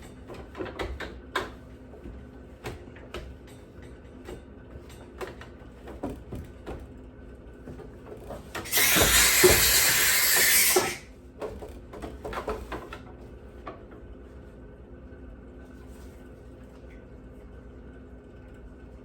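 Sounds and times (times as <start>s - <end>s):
steam jet hissing: 8.7s - 11.0s.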